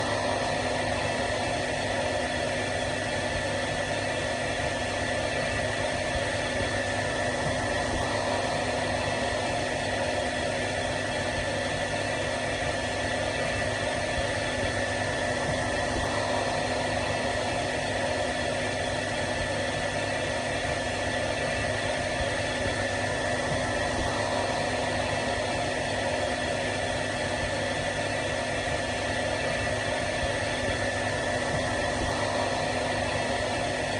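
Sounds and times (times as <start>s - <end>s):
hair dryer running: 0.0s - 33.9s.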